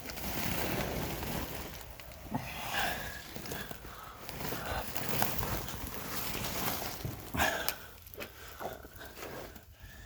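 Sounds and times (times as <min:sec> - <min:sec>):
rustling and scraping in dirt: 0:00.0 - 0:10.0
person breathing heavily: 0:02.4 - 0:05.3, 0:07.2 - 0:10.0.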